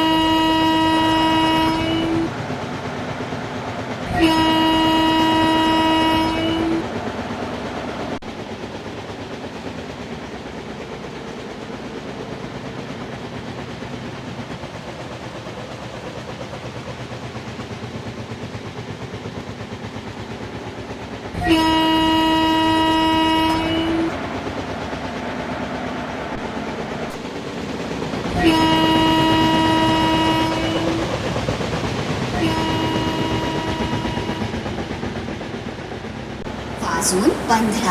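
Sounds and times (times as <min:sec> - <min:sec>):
locomotive horn blast: 0:00.0 - 0:02.3, 0:04.0 - 0:06.9, 0:21.4 - 0:24.2, 0:28.3 - 0:31.1, 0:32.3 - 0:34.6
rhythmic wheel clatter: 0:00.0 - 0:37.9
train rumbling: 0:00.0 - 0:37.9.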